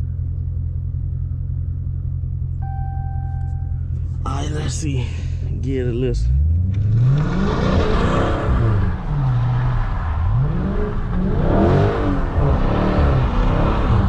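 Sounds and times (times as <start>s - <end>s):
car engine revving hard: 6.3s - 14.0s.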